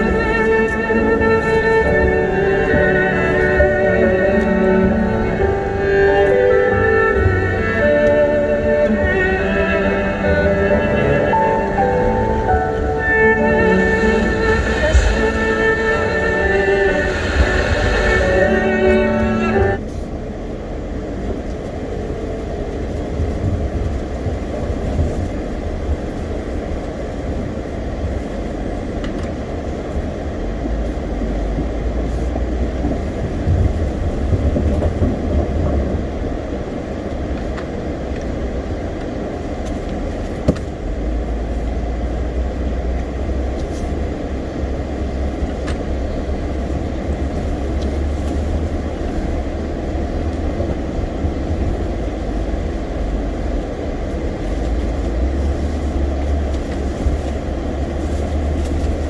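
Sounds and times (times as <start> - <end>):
vehicle engine and road rumble: 0.0 - 59.0.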